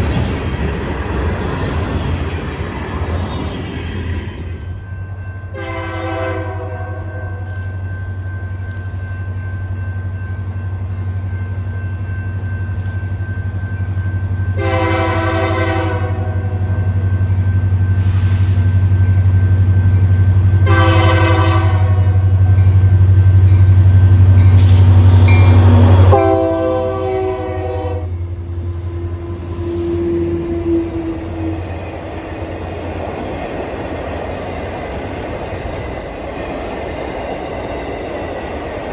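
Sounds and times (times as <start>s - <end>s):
train cars rumbling on rails: 0.0s - 38.9s
locomotive horn blasts: 5.5s - 7.4s, 14.6s - 16.6s, 20.6s - 22.3s, 25.1s - 28.2s
locomotive engine drone: 6.6s - 38.9s.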